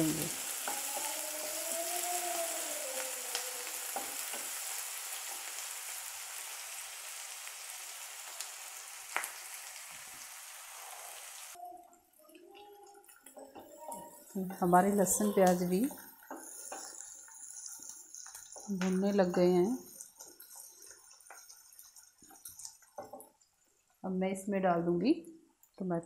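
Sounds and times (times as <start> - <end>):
onions sizzling in hot oil: 0.0 - 11.6, 12.2 - 24.0.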